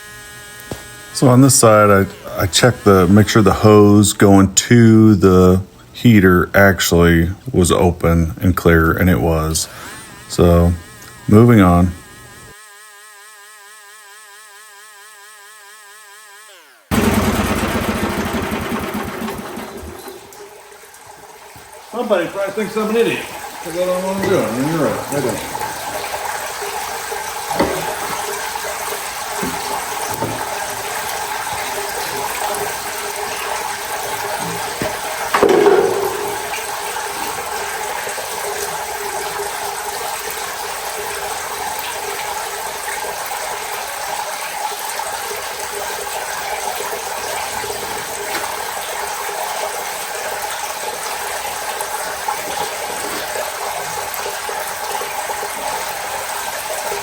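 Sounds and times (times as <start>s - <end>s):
pressurised water hissing and rushing: 16.9s - 57.0s
loud clunk: 34.8s - 36.8s.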